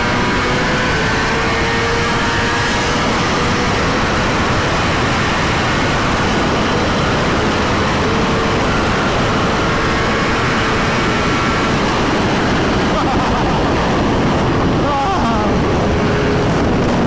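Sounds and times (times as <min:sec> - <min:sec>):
motorcycle engine running: 0:00.0 - 0:17.0
wind noise: 0:00.0 - 0:17.0.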